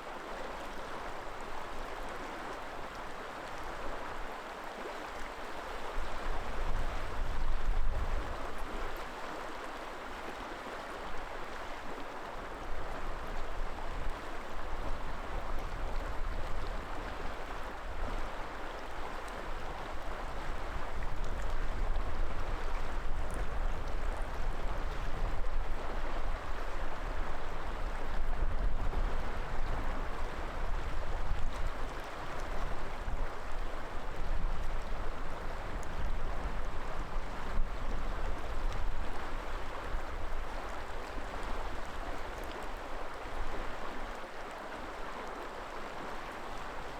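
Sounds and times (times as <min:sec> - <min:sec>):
river water rushing: 0:29.3 - 0:46.9.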